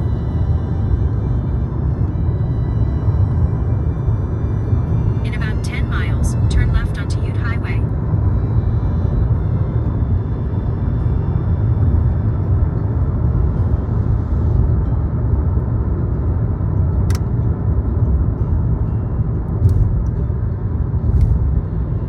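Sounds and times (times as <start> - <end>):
car interior road rumble: 0.0 - 22.0
sharp click: 17.1 - 17.3.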